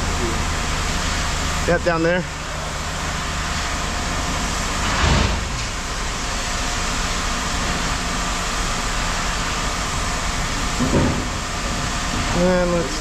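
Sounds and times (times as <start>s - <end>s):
machinery running with hum: 0.0s - 13.0s.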